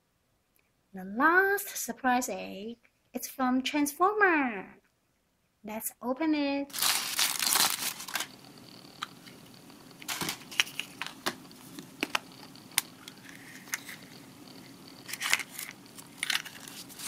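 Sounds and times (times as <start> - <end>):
wrapping crinkling: 6.7 - 17.0
egg shell cracking and clicking: 10.0 - 16.7.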